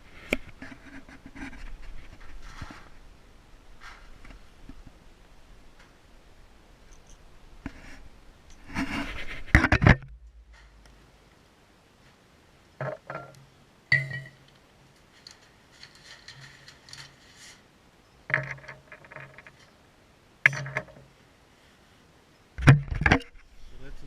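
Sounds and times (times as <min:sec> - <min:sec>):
faint scraping and rustling: 0:00.0 - 0:24.0.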